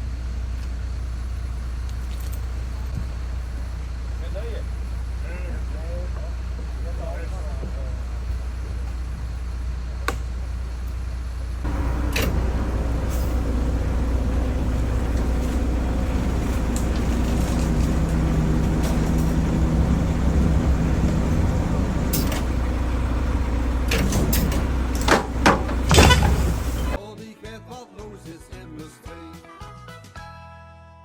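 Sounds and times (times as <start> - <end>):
heavy vehicle engine running: 0.0 - 27.0
sharp knocks: 11.7 - 27.0.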